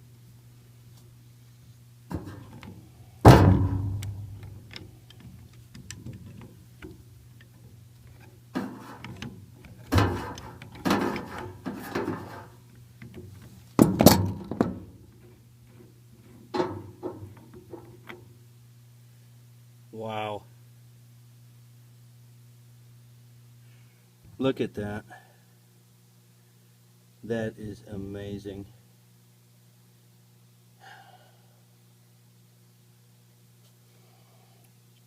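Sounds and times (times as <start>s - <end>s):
steady low hum: 0.0s - 35.0s
knocks and clunks of pipe fittings: 2.1s - 18.3s.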